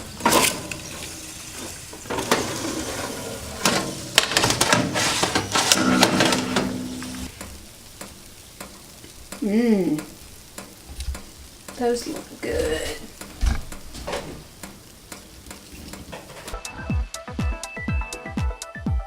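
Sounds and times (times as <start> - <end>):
metal tray and rack clattering: 0.0 - 7.3
oven door opening click: 3.6 - 7.3.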